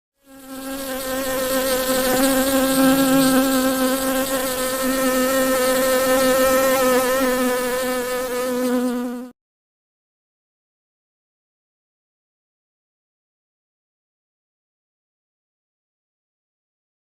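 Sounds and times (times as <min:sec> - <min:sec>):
honeybees buzzing: 0:00.2 - 0:09.3.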